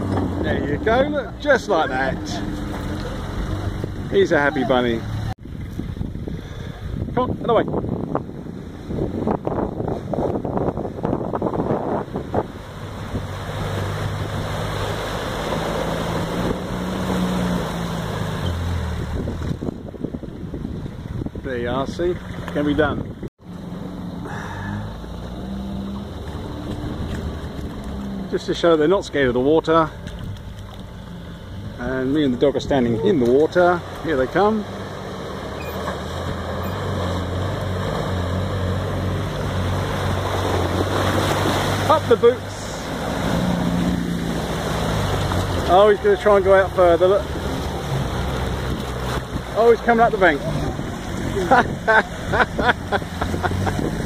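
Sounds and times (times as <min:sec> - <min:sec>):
water rushing and splashing: 0:00.0 - 0:54.0
wind buffeting microphone: 0:05.2 - 0:14.9, 0:18.7 - 0:23.3, 0:47.2 - 0:54.0.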